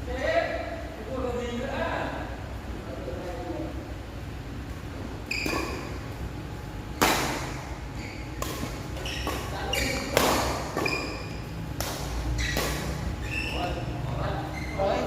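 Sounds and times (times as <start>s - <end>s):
shoes squeaking on floor: 5.2s - 6.0s, 7.9s - 11.5s, 12.2s - 15.0s
rackets hitting shuttlecock: 7.0s - 13.1s.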